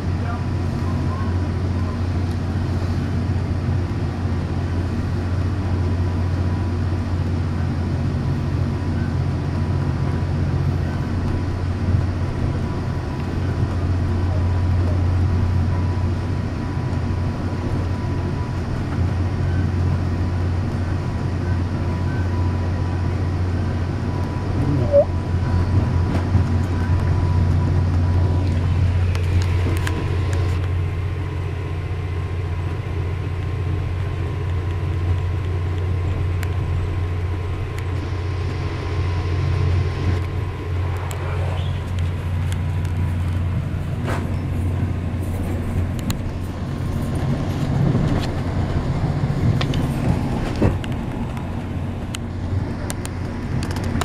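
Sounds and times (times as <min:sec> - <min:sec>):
train rumble inside coach: 0:00.0 - 0:54.0
faint high whine: 0:19.3 - 0:31.3
sharp squeak: 0:24.7 - 0:25.1.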